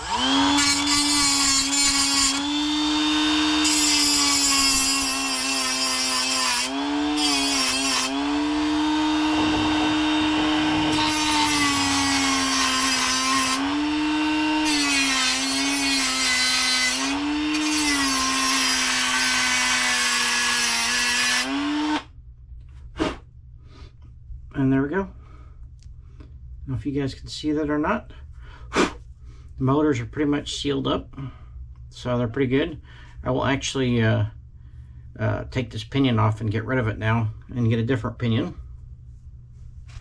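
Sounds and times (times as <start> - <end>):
rotary tool grinding metal: 0.0 - 22.0.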